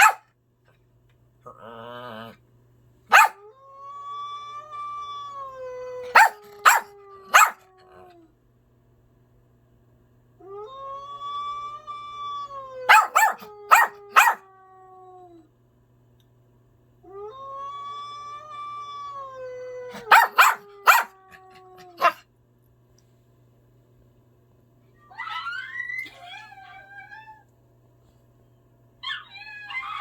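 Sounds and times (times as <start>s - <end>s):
sharp yelps: 0.0s - 0.2s, 3.1s - 3.4s, 6.1s - 7.6s, 12.9s - 14.4s, 19.9s - 21.2s
animal howling: 10.5s - 15.4s, 17.1s - 22.2s, 29.0s - 30.0s.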